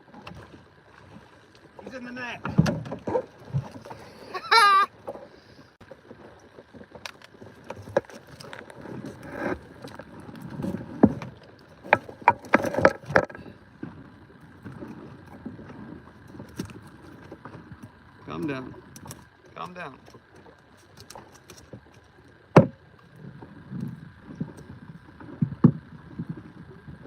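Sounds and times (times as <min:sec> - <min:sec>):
knocks and rustling aboard boat: 0:00.0 - 0:27.0
wavering high-pitched cry: 0:04.2 - 0:04.9.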